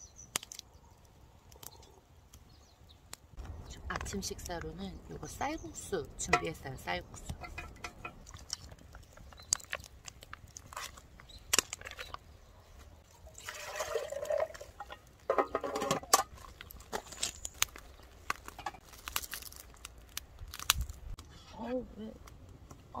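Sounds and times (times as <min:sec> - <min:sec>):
metal cookware clattering: 0:07.4 - 0:08.2, 0:14.9 - 0:16.4
liquid pouring: 0:13.2 - 0:15.1.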